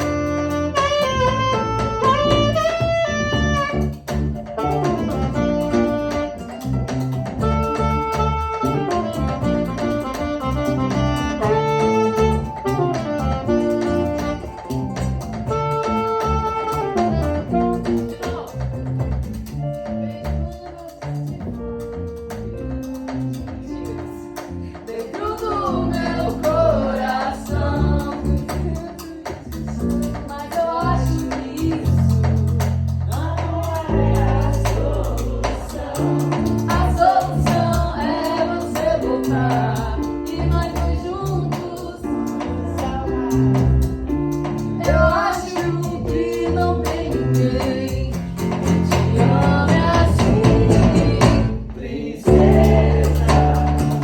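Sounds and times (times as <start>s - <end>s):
live band playing: 0.0s - 54.0s.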